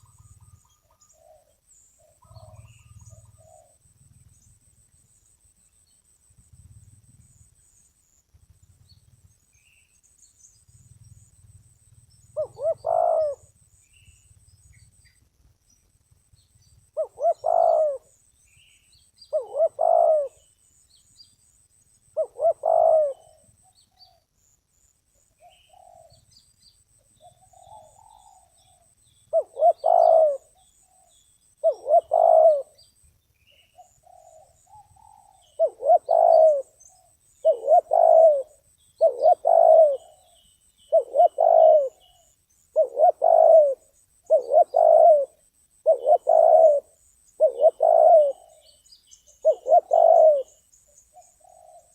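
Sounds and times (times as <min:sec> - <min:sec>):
dove cooing: 0:00.0 - 0:04.6, 0:10.7 - 0:13.6, 0:16.9 - 0:18.2, 0:19.3 - 0:20.5, 0:22.1 - 0:24.2, 0:25.4 - 0:26.3, 0:27.2 - 0:32.9, 0:33.7 - 0:51.9
small birds chirping: 0:00.0 - 0:51.9.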